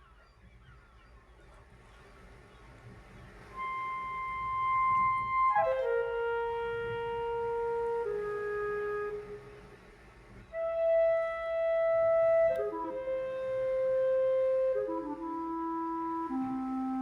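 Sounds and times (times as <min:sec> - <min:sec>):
flute-like woodwind long notes: 0:03.5 - 0:17.0.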